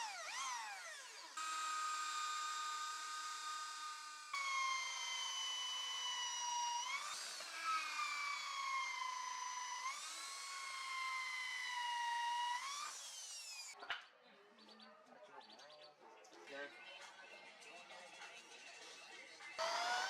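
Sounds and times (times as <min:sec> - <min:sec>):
electric power tool motor whining: 0:00.0 - 0:13.8, 0:19.6 - 0:20.0.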